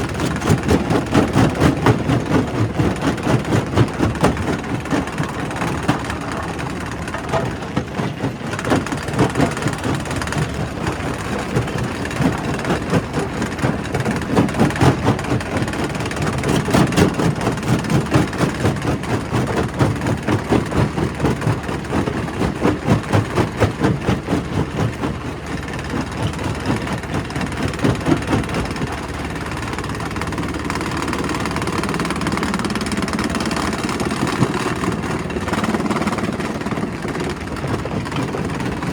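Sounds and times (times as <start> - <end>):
heavy machinery running: 0.0 - 38.9
rock crusher clattering knocks: 3.5 - 29.0.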